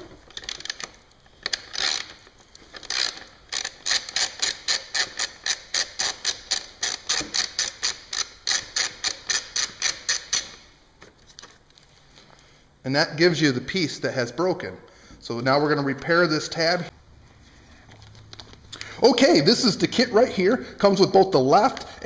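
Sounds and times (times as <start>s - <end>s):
hand ratchet clicking: 0.3s - 10.7s.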